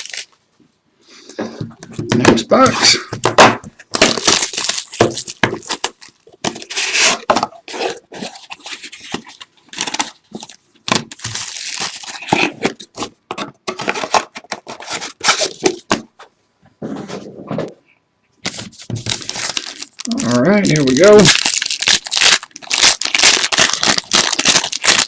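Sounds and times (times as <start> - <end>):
packaging tearing and crinkling: 0.0 - 0.4, 3.9 - 12.9, 18.5 - 25.0.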